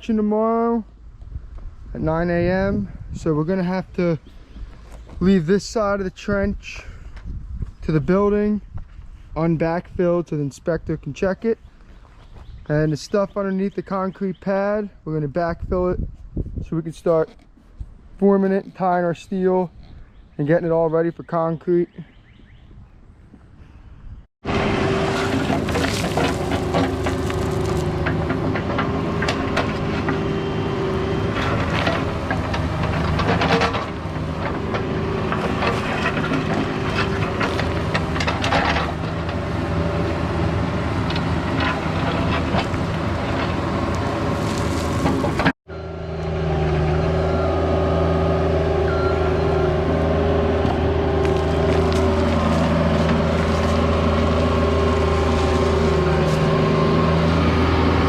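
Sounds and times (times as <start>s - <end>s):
excavator diesel engine: 24.4s - 58.0s
metal clanks and knocks: 31.3s - 39.4s.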